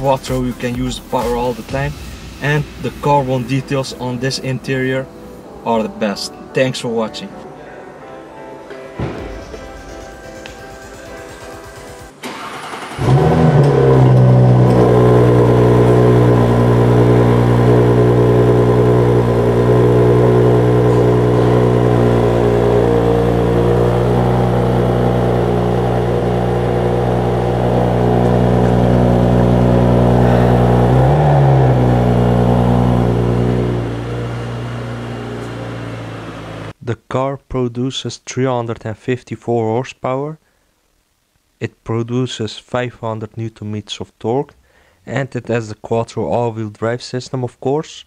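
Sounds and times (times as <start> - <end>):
car engine starting and idling: 9.2 - 36.8
engine revs flaring: 11.2 - 36.8.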